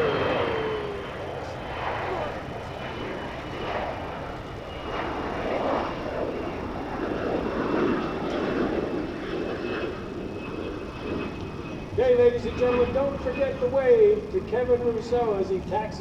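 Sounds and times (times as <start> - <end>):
steady high whine: 0.0 - 5.6
jet engines roaring: 0.0 - 16.0.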